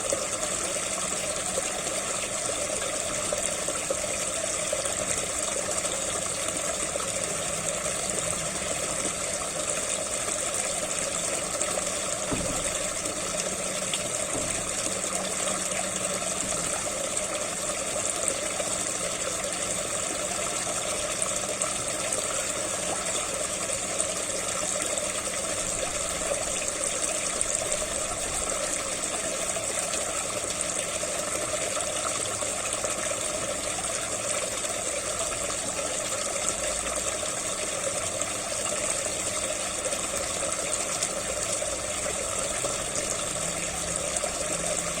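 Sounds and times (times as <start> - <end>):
pump water gushing into pond: 0.0 - 45.0.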